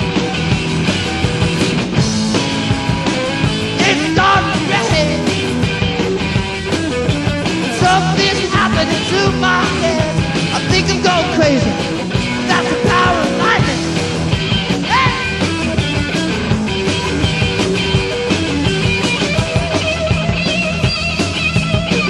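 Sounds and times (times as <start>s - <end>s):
drums: 0.0s - 22.0s
electric guitar: 0.0s - 22.0s
rock band playing punk rock: 0.0s - 22.0s
person singing and shouting: 3.8s - 5.4s, 7.7s - 14.0s, 14.8s - 15.6s.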